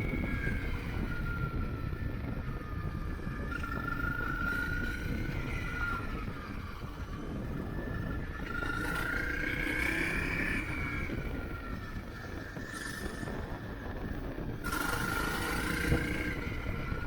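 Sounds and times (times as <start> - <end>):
thin whine: 0.0 - 17.0
wind and road noise: 0.0 - 17.0.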